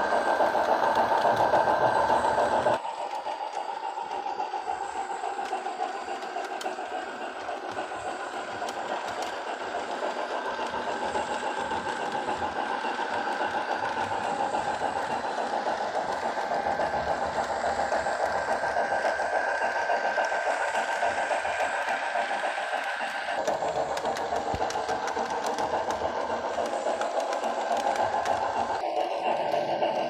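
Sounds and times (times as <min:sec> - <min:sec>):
model steam train chuffing: 0:00.0 - 0:30.0.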